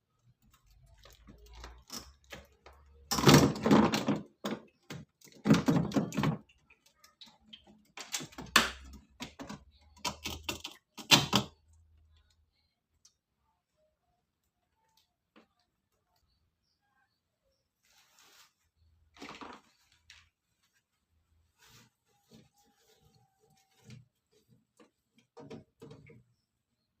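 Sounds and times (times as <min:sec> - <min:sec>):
objects clattering and knocking: 0:00.4 - 0:11.6, 0:19.1 - 0:20.4.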